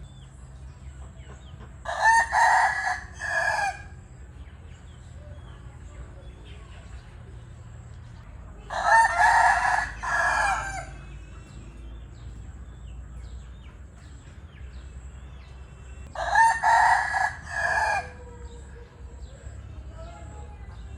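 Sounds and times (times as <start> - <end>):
rooster crowing: 1.9 - 4.0, 8.7 - 11.1, 16.1 - 18.7.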